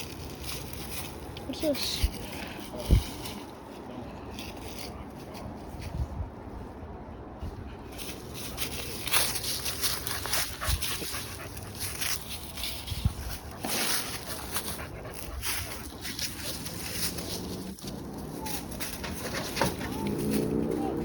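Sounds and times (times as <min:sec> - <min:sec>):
footsteps crunching through debris: 0:08.1 - 0:21.0
dog panting and whimpering: 0:09.8 - 0:17.3.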